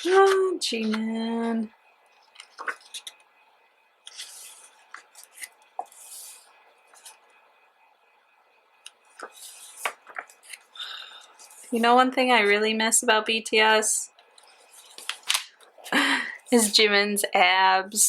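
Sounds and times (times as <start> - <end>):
paper pages swishing: 2.4 - 3.2, 4.1 - 7.2, 9.1 - 10.6
sticking pages clicking and popping: 2.4 - 3.2, 9.2 - 10.7, 14.8 - 15.8.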